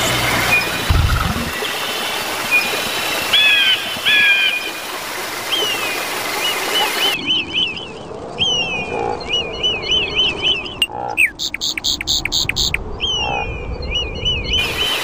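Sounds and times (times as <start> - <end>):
running water: 0.0 - 7.2
birds chirping: 0.0 - 15.0.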